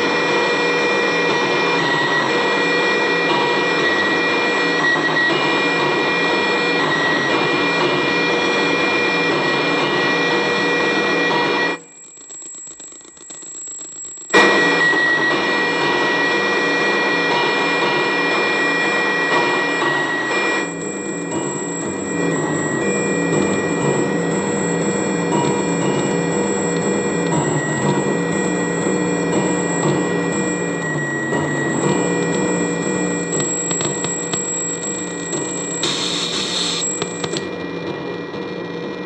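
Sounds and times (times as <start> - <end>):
harsh digital noise drone: 0.0 - 39.0
click: 12.0 - 14.4, 25.3 - 28.0, 33.3 - 37.5
steady high tones: 19.7 - 37.5.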